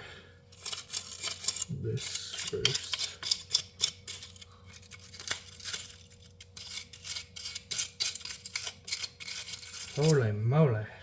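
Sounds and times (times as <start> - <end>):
scrubbing and rubbing: 6.6 - 10.2.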